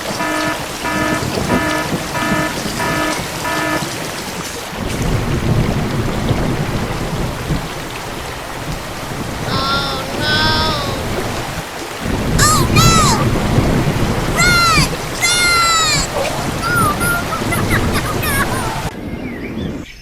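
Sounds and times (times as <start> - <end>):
electronic beeping: 0.1 - 3.8.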